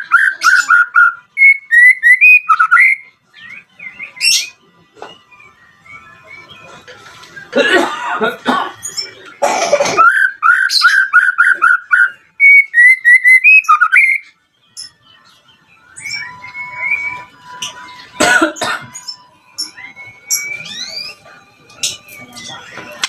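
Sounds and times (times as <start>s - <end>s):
bird whistling calls: 0.0s - 4.6s, 10.0s - 14.2s, 16.0s - 17.3s, 19.6s - 21.3s.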